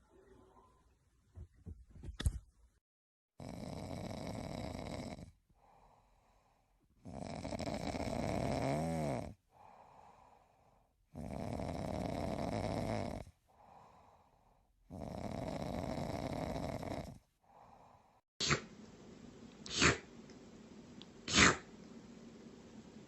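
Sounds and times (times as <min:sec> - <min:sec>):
cat snoring: 0:03.4 - 0:05.9, 0:07.0 - 0:10.2, 0:11.1 - 0:14.1, 0:14.9 - 0:17.9.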